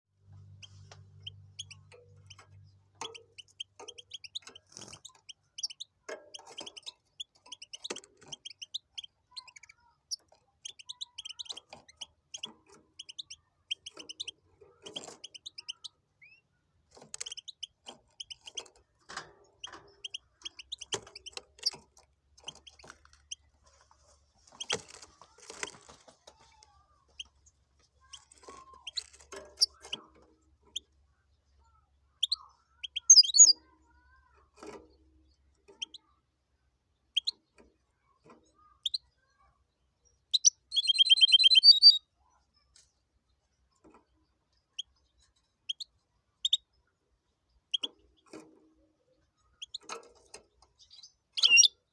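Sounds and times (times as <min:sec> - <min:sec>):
bird singing twittering chirps: 0:00.4 - 0:21.8, 0:27.2 - 0:33.7, 0:40.0 - 0:42.1, 0:44.5 - 0:48.4, 0:49.1 - 0:51.9.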